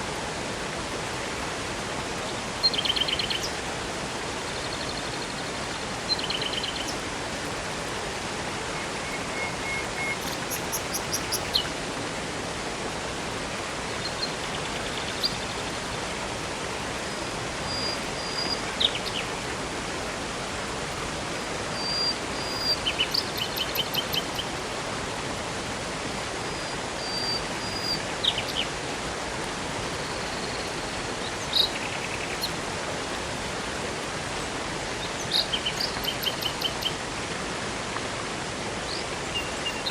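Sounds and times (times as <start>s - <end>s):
flowing water rushing: 0.0s - 39.9s
birds calling and trilling: 8.7s - 11.7s.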